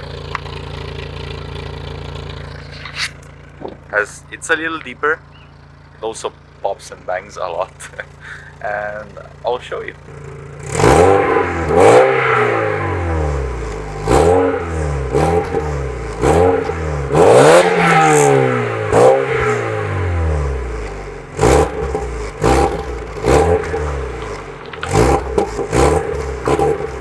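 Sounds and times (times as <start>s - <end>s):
car engine revving: 0.0s - 27.0s
exhaust pops and bangs: 0.1s - 4.2s, 20.8s - 27.0s.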